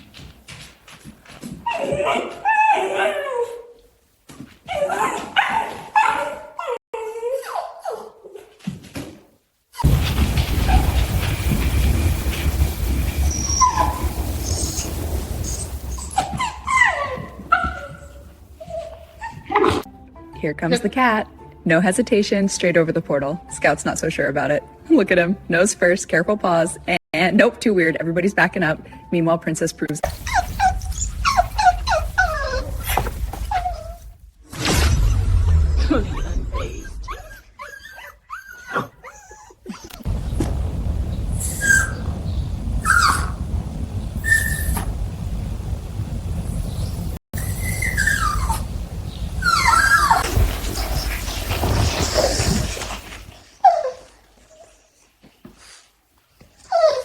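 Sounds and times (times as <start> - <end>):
dog whimpering: 15.9 - 19.9, 30.1 - 34.0, 36.0 - 40.0, 47.4 - 48.7, 49.4 - 50.2, 56.7 - 57.0
low background rumble: 40.1 - 50.2.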